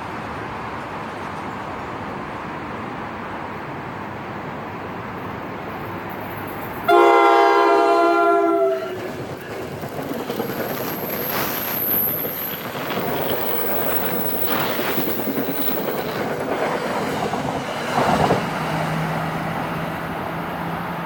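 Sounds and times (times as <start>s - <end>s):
train rumbling and clattering: 0.0s - 21.0s
locomotive air horn: 6.9s - 9.1s
high squeal: 10.2s - 15.9s.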